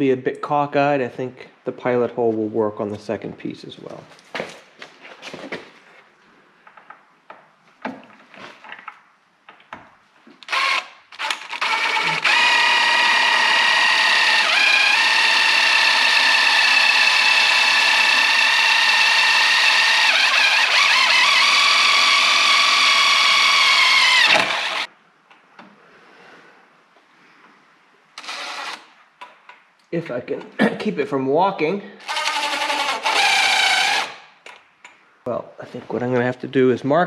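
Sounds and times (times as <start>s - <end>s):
power drill whining: 10.4s - 24.9s, 28.2s - 28.9s, 32.0s - 34.3s.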